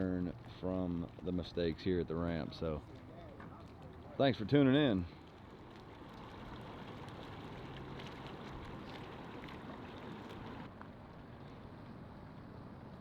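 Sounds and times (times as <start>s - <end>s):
boat motor humming: 6.0s - 10.7s.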